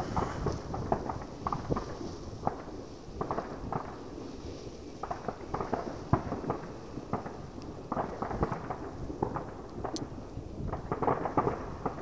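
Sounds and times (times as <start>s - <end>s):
distant fireworks pops and bangs: 0.0s - 12.0s.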